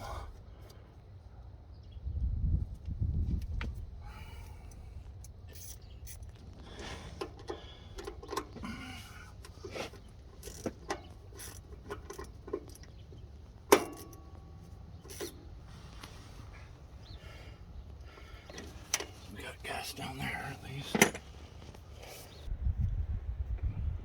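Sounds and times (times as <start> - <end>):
metal tools clicking and tapping: 10.3 - 15.4
sharp metallic clink: 13.7 - 15.4.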